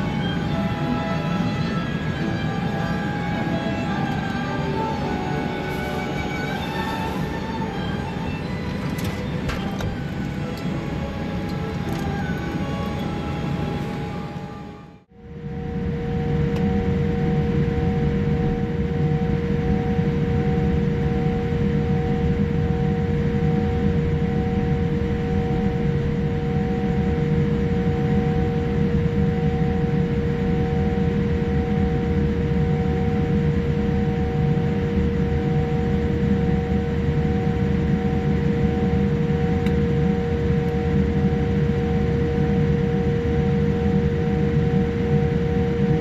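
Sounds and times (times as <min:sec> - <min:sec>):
pulsing high tone: 0:00.0 - 0:15.0
constant hum: 0:00.0 - 0:46.0.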